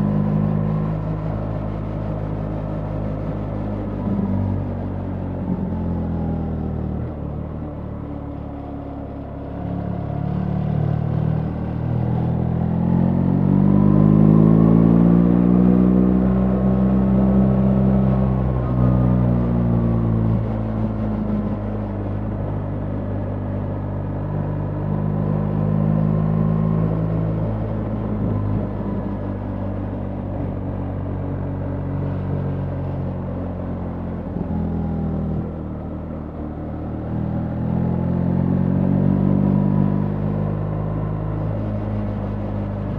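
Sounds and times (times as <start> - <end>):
motorcycle engine accelerating: 0.0 - 42.9
road noise: 0.0 - 42.9.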